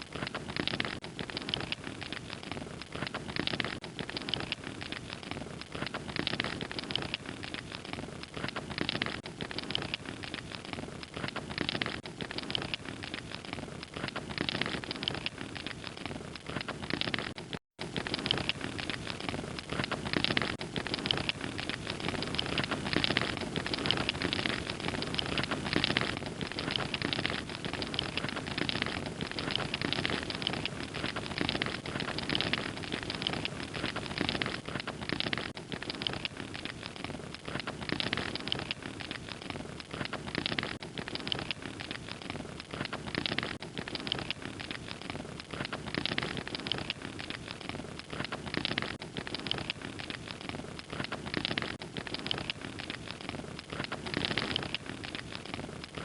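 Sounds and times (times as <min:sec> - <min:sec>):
fire crackling: 0:00.0 - 0:56.0.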